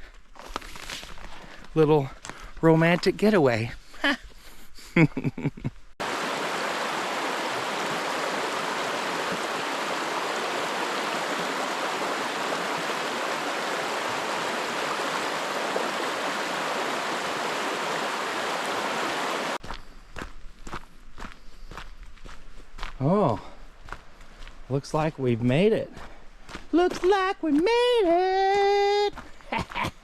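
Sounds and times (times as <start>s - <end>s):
stream water rushing: 6.0s - 19.6s.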